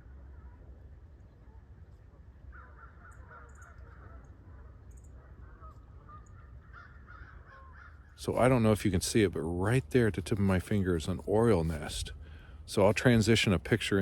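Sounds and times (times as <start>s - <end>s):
small birds chirping: 0.0s - 8.8s
crows cawing: 2.5s - 4.4s, 5.3s - 8.2s.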